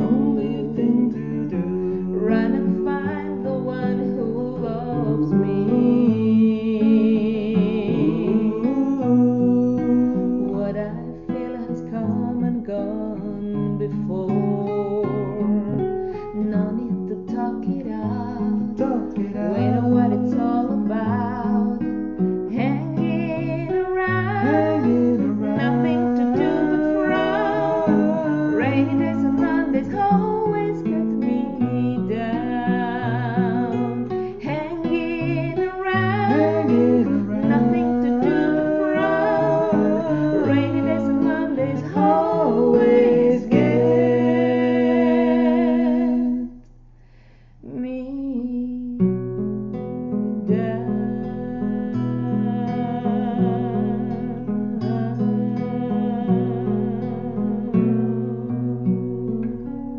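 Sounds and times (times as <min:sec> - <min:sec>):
person singing: 0:00.0 - 0:46.6, 0:50.5 - 0:59.7
acoustic guitar: 0:00.0 - 0:59.9.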